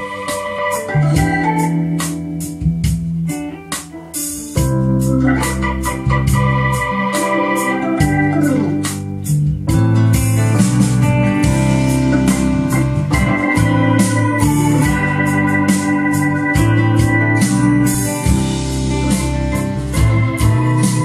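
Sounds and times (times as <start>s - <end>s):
bass line: 0.0s - 3.6s, 4.4s - 21.0s
organ chords: 0.0s - 21.0s
drum hits: 8.0s - 21.0s.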